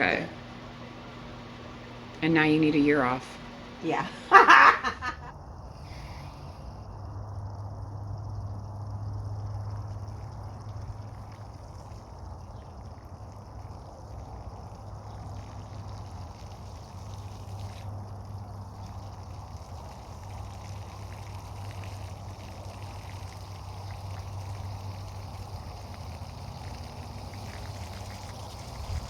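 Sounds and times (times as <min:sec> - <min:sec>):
low hum: 0:00.0 - 0:15.1.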